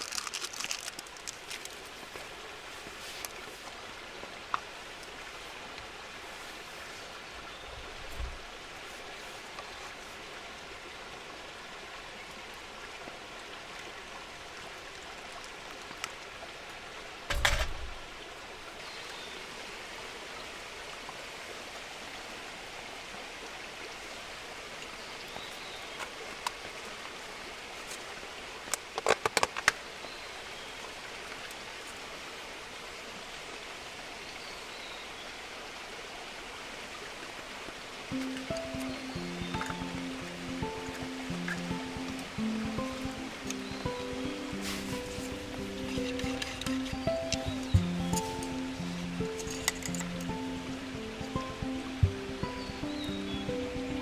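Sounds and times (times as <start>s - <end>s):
rain falling: 0.0s - 30.1s, 36.2s - 54.0s
sharp clicks and knocks: 17.3s - 18.0s.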